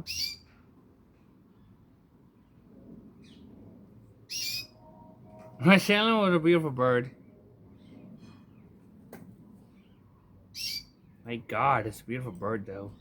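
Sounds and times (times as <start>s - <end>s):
canary chirping: 0.0s - 0.5s, 4.3s - 4.8s, 9.9s - 11.0s.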